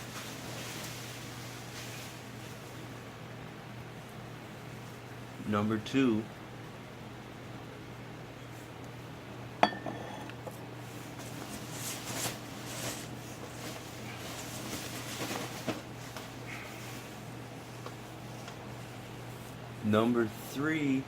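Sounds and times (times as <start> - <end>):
wrapping paper rustling: 0.0 - 2.8, 11.1 - 19.5
glass bottles clinking: 9.6 - 10.2.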